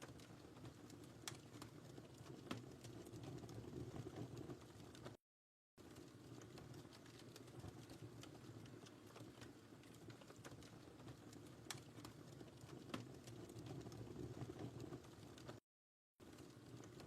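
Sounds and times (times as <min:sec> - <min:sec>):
faint wood fire crackling: 0:00.0 - 0:05.2, 0:05.8 - 0:15.6, 0:16.2 - 0:17.0.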